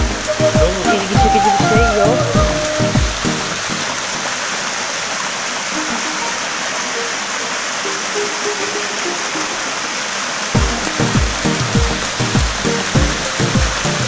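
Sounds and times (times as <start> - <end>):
stream over small waterfalls: 0.0 - 14.0.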